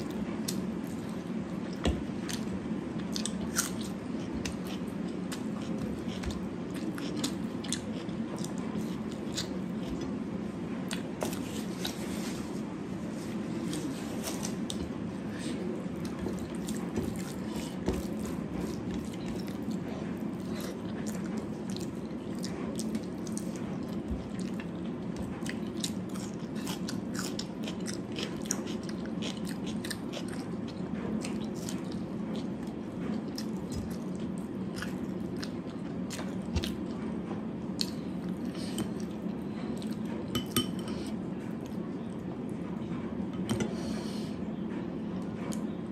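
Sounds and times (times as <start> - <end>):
steady low hum: 0.0 - 45.9
person chewing and biting: 2.0 - 10.2, 13.4 - 36.9.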